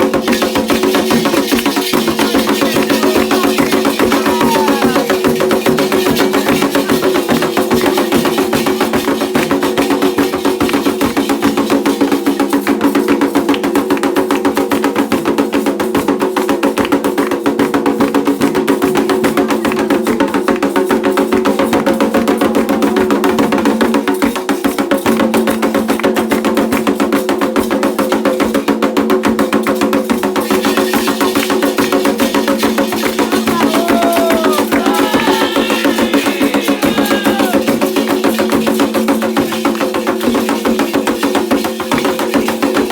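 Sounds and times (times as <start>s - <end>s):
hand drums fast rhythm: 0.0s - 42.9s
voices singing: 2.8s - 5.2s, 33.2s - 37.8s.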